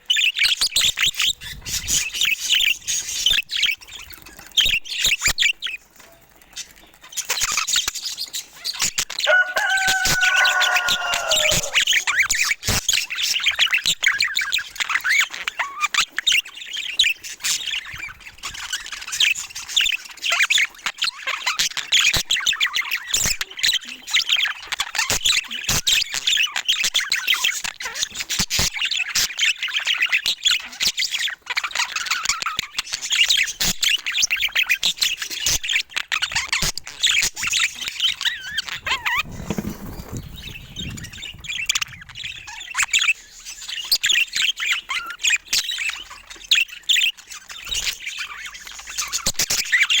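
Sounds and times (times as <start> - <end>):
budgerigars chirping: 6.6 - 21.3
low-pitched bird call: 9.3 - 12.2.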